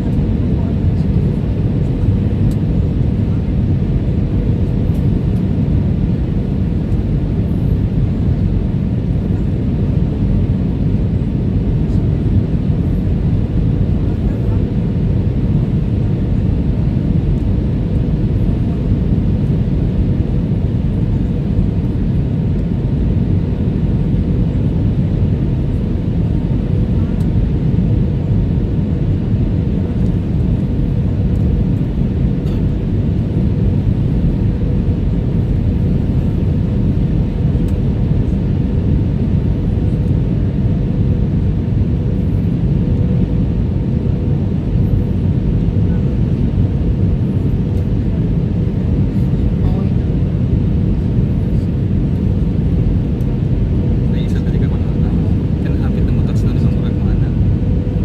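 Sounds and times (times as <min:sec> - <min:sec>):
aircraft cabin engine rumble: 0:00.0 - 0:58.0.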